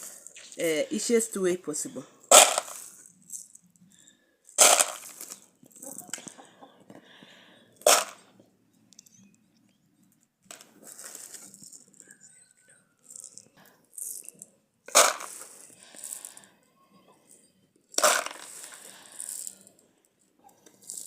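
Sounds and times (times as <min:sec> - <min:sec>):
loose beans rattling: 0:00.0 - 0:06.5, 0:07.8 - 0:08.2, 0:10.5 - 0:16.5, 0:17.2 - 0:21.0
dry beans clattering: 0:00.0 - 0:09.2, 0:10.5 - 0:16.6, 0:17.2 - 0:21.0.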